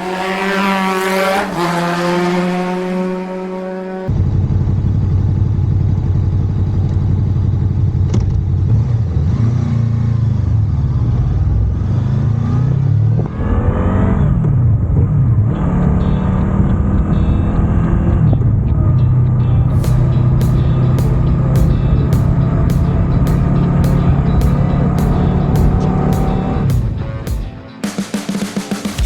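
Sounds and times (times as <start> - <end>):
motorcycle engine revving: 0.0 - 27.6.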